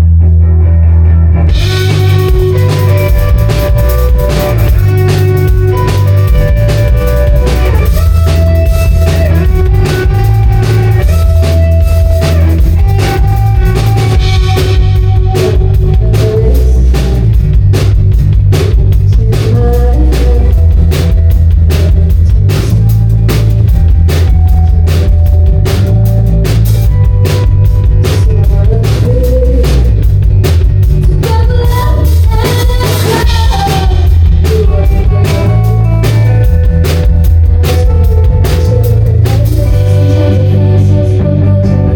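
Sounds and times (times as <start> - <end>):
heavy loud bass: 0.0 - 41.9
live rock band playing: 0.0 - 41.9
guitar holding notes: 0.4 - 16.5, 32.6 - 41.9
drum kit beats: 1.5 - 41.8.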